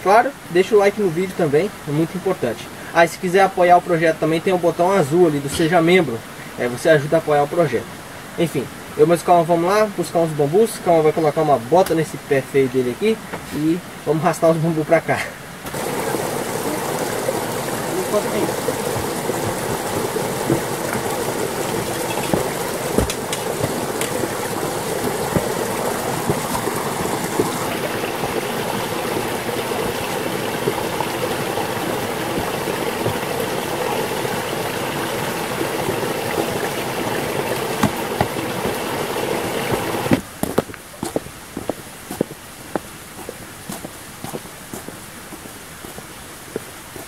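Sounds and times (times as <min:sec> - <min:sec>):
stream water rushing: 0:00.0 - 0:47.0
sharp knocks: 0:18.2 - 0:27.7, 0:37.7 - 0:38.8.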